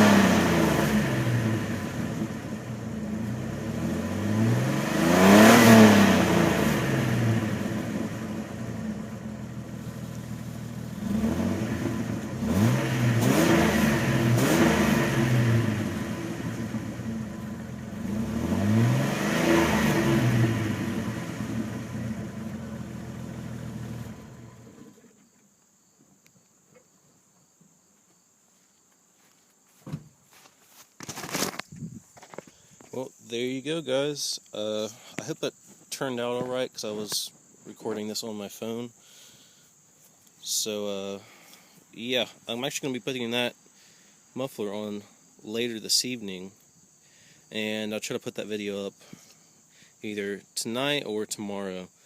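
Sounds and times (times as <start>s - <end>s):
car engine revving and idling: 0.0s - 25.1s.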